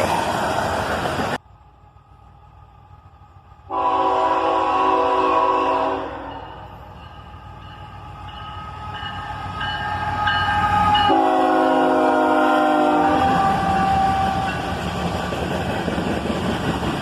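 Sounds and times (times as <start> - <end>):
train rolling by: 0.0 - 17.0
locomotive air horn: 3.7 - 6.6, 10.2 - 14.5.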